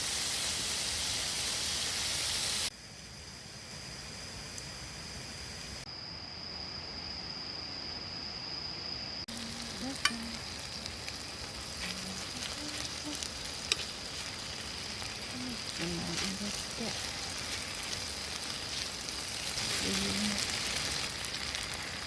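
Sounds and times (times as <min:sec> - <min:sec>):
food sizzling in a pan: 0:00.0 - 0:05.8, 0:09.3 - 0:22.0
sharp pops of frying: 0:09.3 - 0:22.0.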